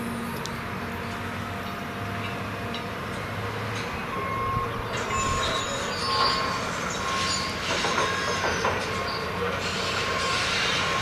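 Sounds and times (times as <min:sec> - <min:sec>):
train wheels on steel rails: 0:01.1 - 0:11.0
high wheel squeal: 0:04.0 - 0:11.0.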